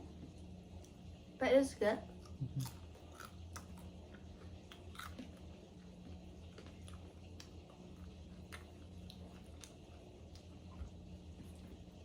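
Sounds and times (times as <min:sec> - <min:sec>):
steady low hum: 0:00.0 - 0:12.0
person chewing: 0:02.1 - 0:10.6.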